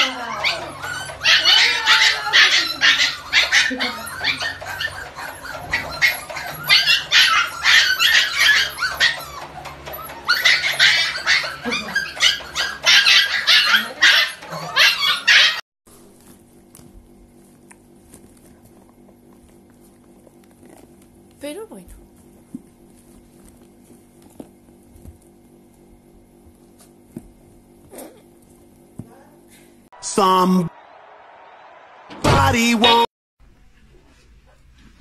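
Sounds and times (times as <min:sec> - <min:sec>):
puppies yipping and barking: 0:00.0 - 0:15.6.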